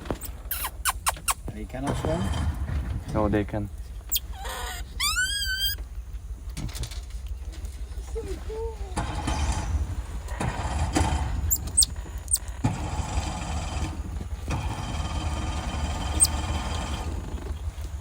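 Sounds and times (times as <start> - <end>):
high-pitched squeaks: 0.1 - 1.6, 4.1 - 5.8, 11.0 - 12.6, 15.8 - 16.7
steady low rumble: 1.4 - 18.0.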